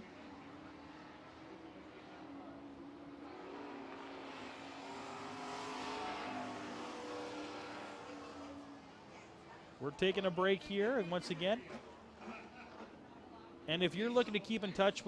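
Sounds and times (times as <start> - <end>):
race truck engines passing: 0.0 - 15.0.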